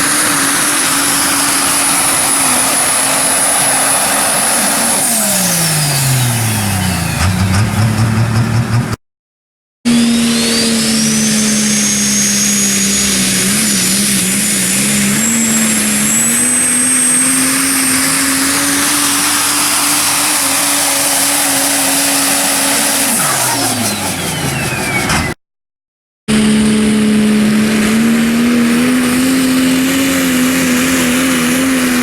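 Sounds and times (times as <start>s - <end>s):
turbocharger whistle: 0.0s - 8.3s, 9.9s - 25.4s
diesel truck engine at full power: 0.0s - 9.0s, 9.9s - 25.4s, 26.3s - 32.0s.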